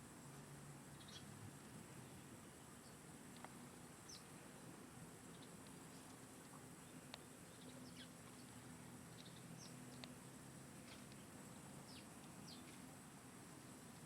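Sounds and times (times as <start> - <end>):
low steady hum: 0.0 - 14.0
faint bird chirps: 0.9 - 1.4, 4.0 - 4.7, 5.3 - 10.3, 11.0 - 12.8.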